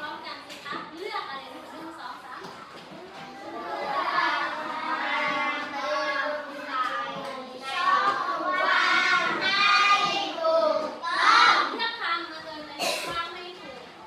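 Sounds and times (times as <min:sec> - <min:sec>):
children singing in unison: 0:03.4 - 0:11.6.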